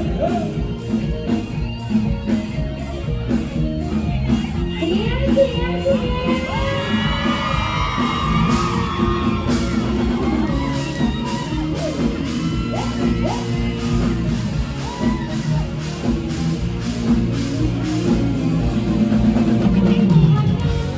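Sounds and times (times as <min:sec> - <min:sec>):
live band music: 0:00.0 - 0:20.9
steady drum beat: 0:00.0 - 0:20.9
shouts and whoops: 0:06.2 - 0:16.0.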